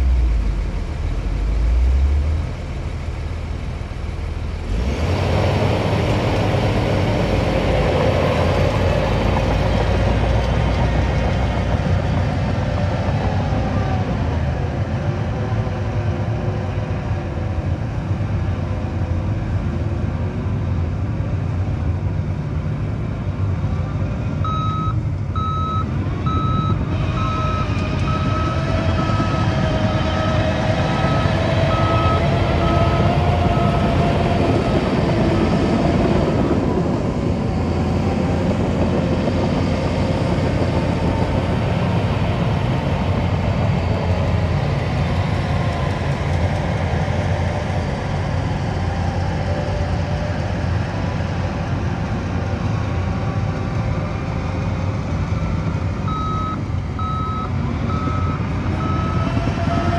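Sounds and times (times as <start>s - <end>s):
diesel engine running under load: 0.0s - 59.9s
reversing alarm beeping: 24.4s - 29.6s, 30.9s - 34.0s, 56.1s - 59.9s.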